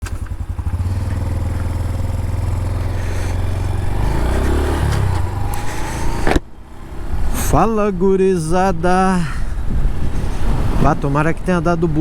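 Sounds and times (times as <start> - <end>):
small motorcycle engine running: 0.0 - 7.3.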